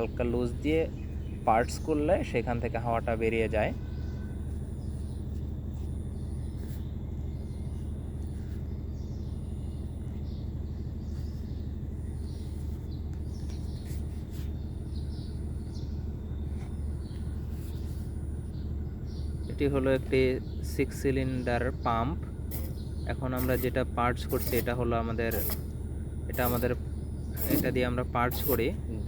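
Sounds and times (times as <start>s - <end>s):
faint bird chirps: 0.0s - 29.0s
steady low hum: 0.0s - 29.0s.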